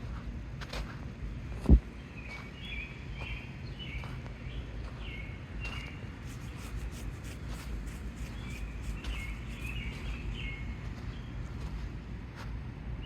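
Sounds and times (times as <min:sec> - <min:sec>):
low outdoor background noise: 0:00.0 - 0:13.0
small birds chirping: 0:01.8 - 0:11.8.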